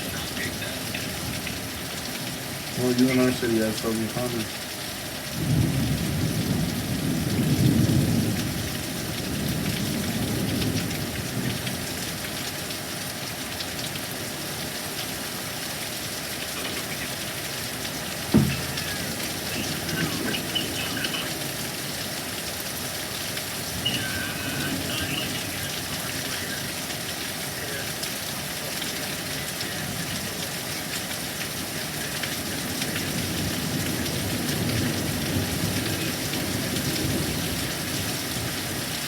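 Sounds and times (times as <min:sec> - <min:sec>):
heavy rain: 0:00.0 - 0:39.0
low roll of thunder: 0:05.4 - 0:11.9
sharp knock: 0:18.3 - 0:18.7.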